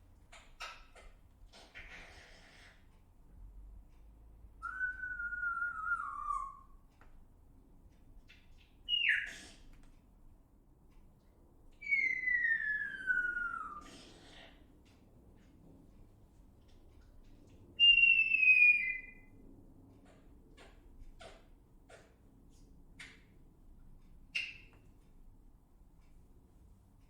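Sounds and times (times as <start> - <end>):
bird whistling falling notes: 4.6 - 6.6, 11.8 - 13.9, 17.8 - 19.3.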